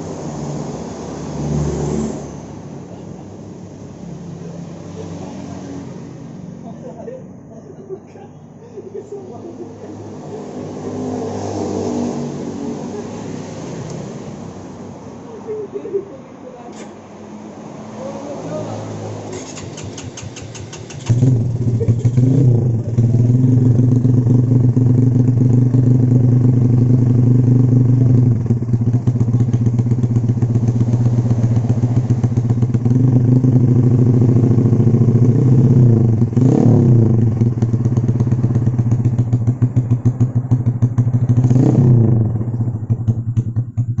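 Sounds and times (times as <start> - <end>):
motorcycle engine idling loudly: 19.5 - 44.0.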